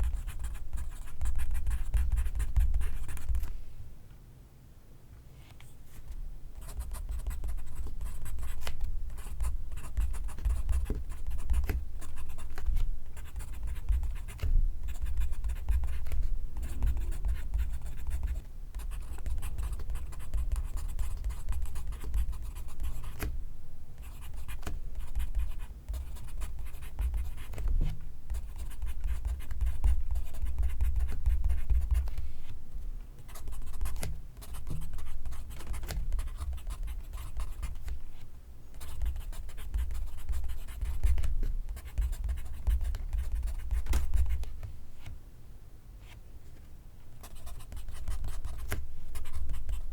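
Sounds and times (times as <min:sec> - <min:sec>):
pencil scratching on paper: 0:47.2 - 0:49.9.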